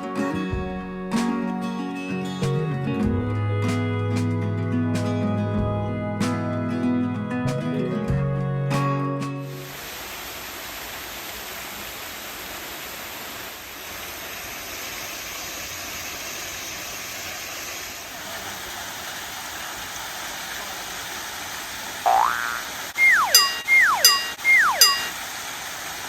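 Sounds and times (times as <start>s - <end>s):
water rushing: 9.4s - 26.0s
rising sound effect tone: 22.1s - 25.1s.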